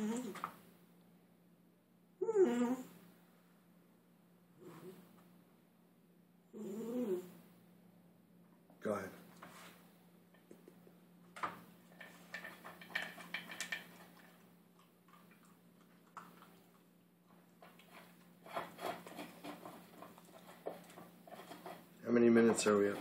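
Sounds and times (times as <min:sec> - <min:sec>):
faint steady hum: 0:00.0 - 0:23.0
puppy eating crunchy food: 0:11.8 - 0:23.0.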